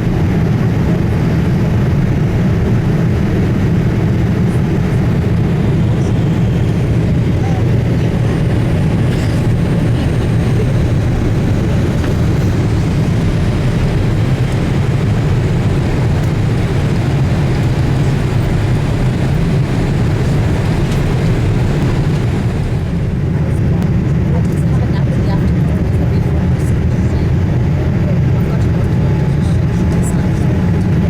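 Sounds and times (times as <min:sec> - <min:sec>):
airflow rushing: 0:00.0 - 0:24.4
airplane cabin rumble: 0:00.0 - 0:31.0.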